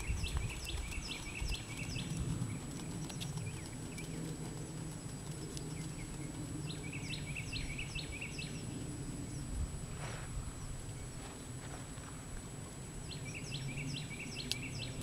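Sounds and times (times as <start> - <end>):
small bird chirping: 0.0 - 4.3, 13.1 - 15.0
low background rumble: 0.0 - 15.0.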